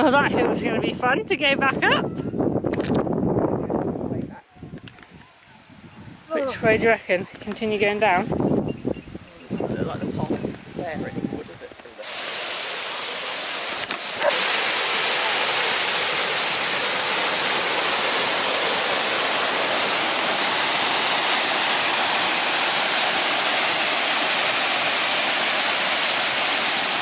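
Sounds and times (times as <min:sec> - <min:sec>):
waterfall rushing: 0:11.9 - 0:27.0.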